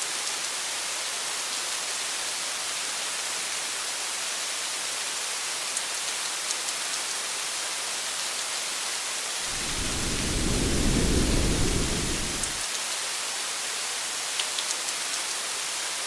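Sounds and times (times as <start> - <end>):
rain hiss: 9.4 - 12.6
thunder rumbling: 9.4 - 12.6.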